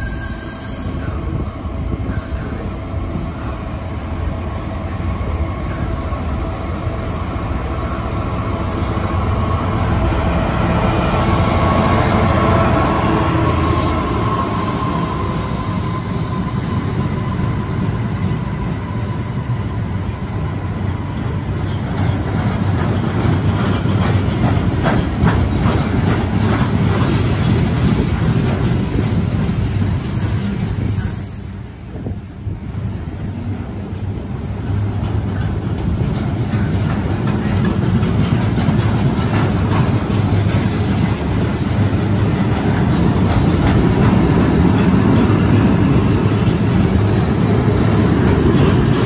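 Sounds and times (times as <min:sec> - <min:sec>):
train rumble: 0:00.0 - 0:49.0
clicking over rails: 0:21.5 - 0:30.8, 0:33.4 - 0:49.0.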